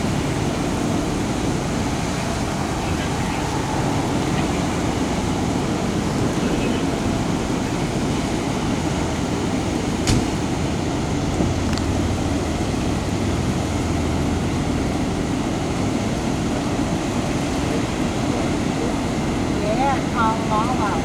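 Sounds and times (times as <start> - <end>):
vehicle engine rumbling: 0.0 - 15.2.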